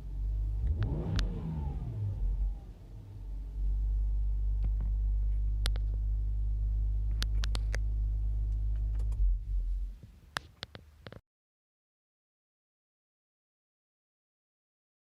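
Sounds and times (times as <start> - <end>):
car engine idling: 0.0 - 10.3.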